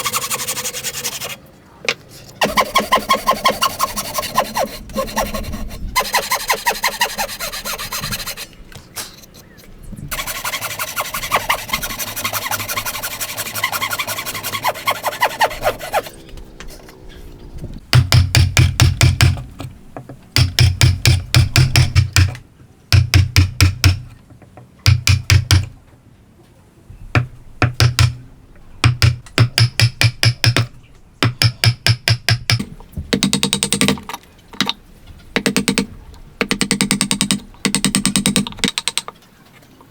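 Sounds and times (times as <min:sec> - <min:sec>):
hand tools rasping wood: 0:00.0 - 0:01.4, 0:02.4 - 0:08.5, 0:10.1 - 0:16.2.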